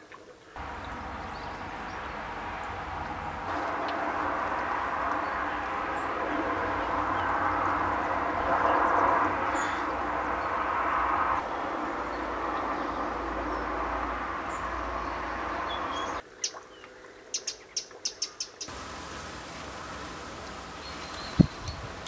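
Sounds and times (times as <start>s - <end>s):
steady background rush: 0.6s - 16.2s.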